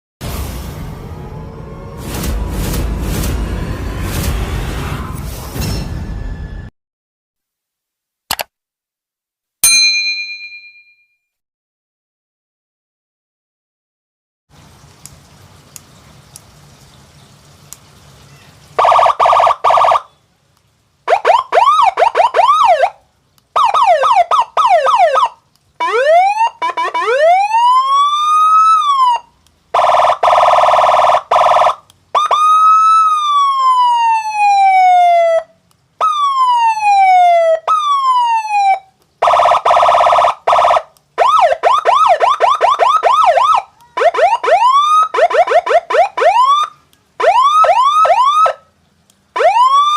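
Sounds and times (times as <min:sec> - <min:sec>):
pulsing horn-like blast: 0:00.2 - 0:06.7
electronic siren warbling and wailing: 0:00.3 - 0:06.7, 0:18.8 - 0:20.1, 0:21.1 - 0:23.0, 0:23.6 - 0:29.2, 0:29.8 - 0:48.6, 0:49.4 - 0:49.9.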